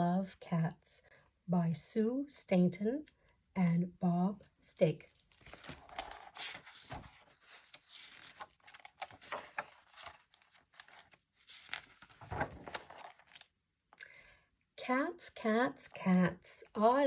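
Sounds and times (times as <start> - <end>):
book pages turning: 5.1 - 13.5.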